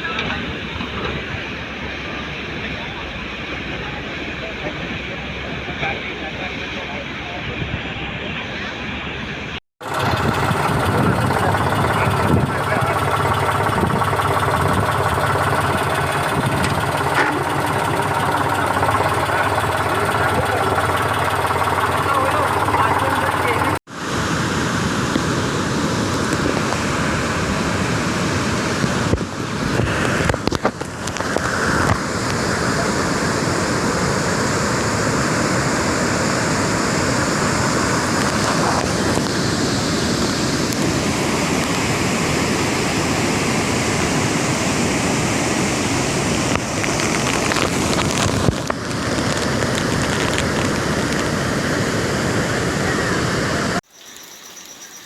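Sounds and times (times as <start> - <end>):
storm wind: 0.0 - 21.8
rushing water: 0.0 - 55.0.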